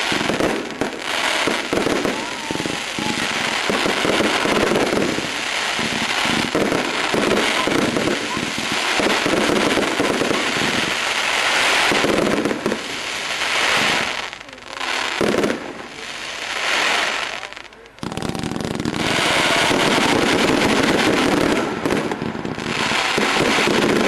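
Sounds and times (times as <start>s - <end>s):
firework crackling bangs: 0.0s - 24.0s.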